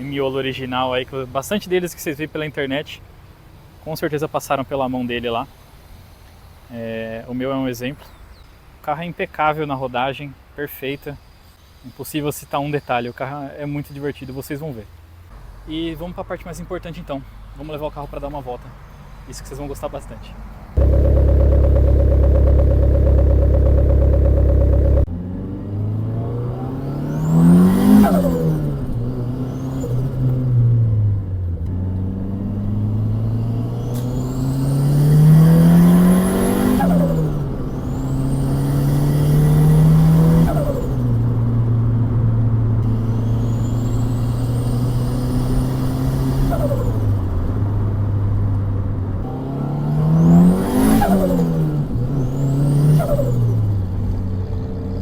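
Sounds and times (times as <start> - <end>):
turbo flutter: 20.8 - 25.1
car engine revving: 20.8 - 55.0.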